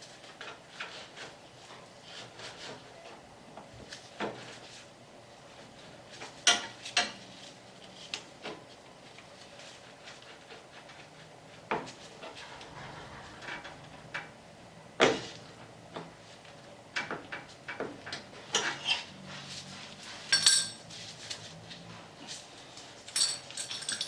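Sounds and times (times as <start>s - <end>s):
metal tools clinking on workbench: 20.3s - 20.8s, 23.1s - 24.0s.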